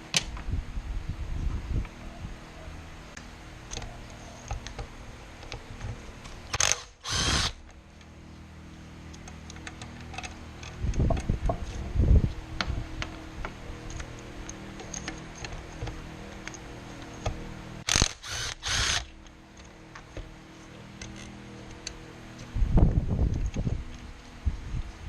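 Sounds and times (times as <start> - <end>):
power tool bursts: 6.6 - 7.6, 17.8 - 19.1.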